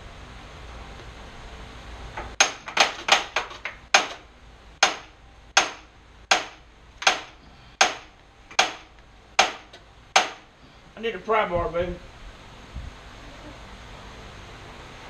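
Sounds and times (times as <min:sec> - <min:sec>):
hammer striking metal: 0:04.8 - 0:10.4.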